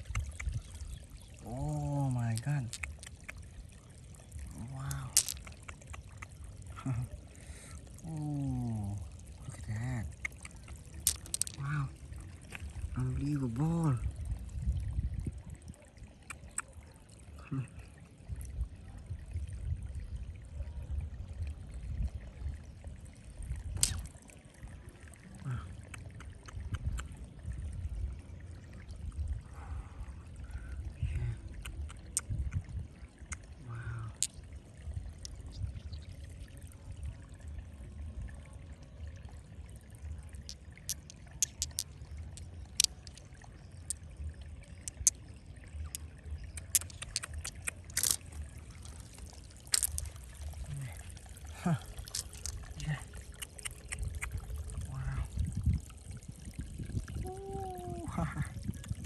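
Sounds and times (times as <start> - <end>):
water sloshing and trickling: 0.0 - 59.0
sharp clicks: 2.4 - 3.4, 44.9 - 45.2, 46.6 - 48.2.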